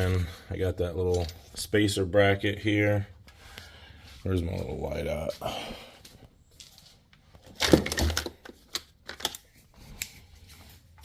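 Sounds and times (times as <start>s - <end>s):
hard objects clattering: 7.5s - 9.3s.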